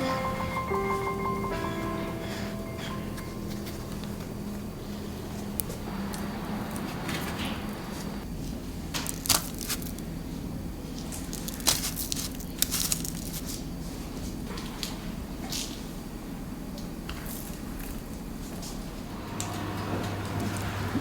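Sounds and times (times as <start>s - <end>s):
steady low hum: 0.0s - 8.7s, 18.4s - 21.0s
soft crinkling handling noises: 3.5s - 16.0s.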